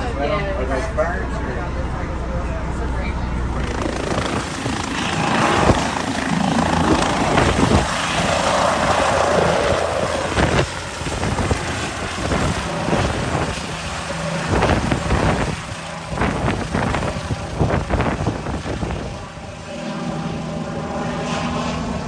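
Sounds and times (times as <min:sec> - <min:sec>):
helicopter drone: 0:00.0 - 0:22.0.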